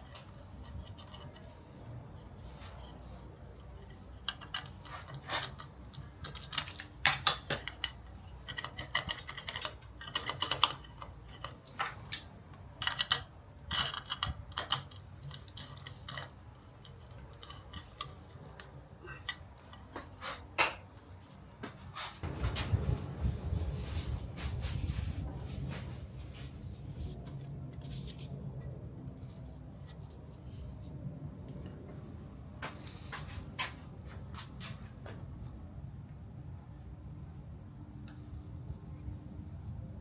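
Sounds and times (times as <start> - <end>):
small parts and tools clicking: 0.0 - 1.8, 2.4 - 20.9.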